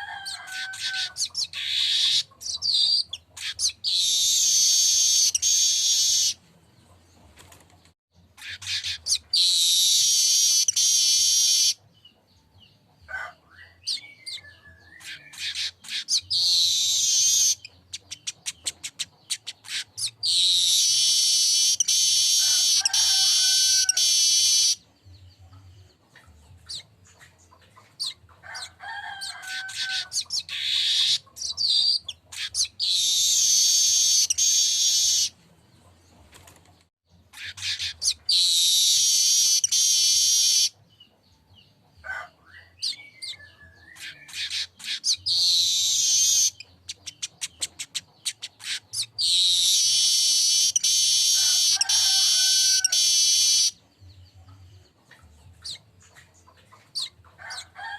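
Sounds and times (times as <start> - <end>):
bird wheezy buzzing song: 0.0 - 6.4, 8.2 - 11.8, 13.6 - 35.4, 37.1 - 40.8, 42.5 - 57.6
bird ticking chirps: 13.9 - 28.3, 42.9 - 53.8.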